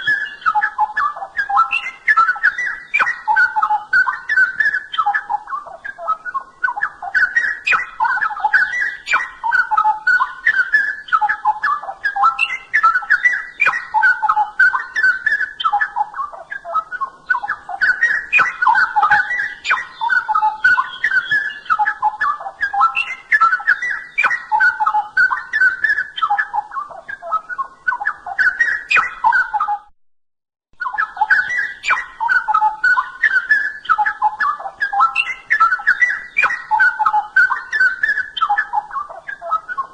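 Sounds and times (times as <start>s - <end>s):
bird singing whistled notes: 0.0s - 29.9s, 30.8s - 39.9s.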